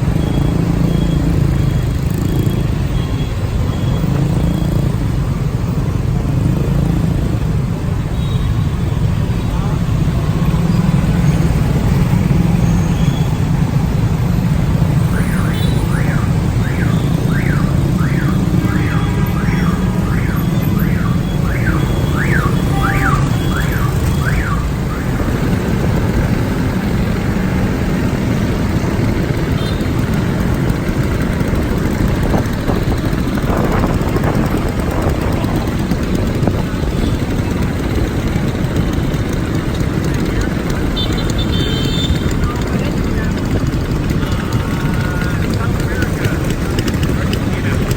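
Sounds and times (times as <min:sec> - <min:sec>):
motorcycle engine and road rumble: 0:00.0 - 0:47.9
electronic alarm warbling: 0:15.0 - 0:25.4
wind on microphone: 0:31.5 - 0:36.9.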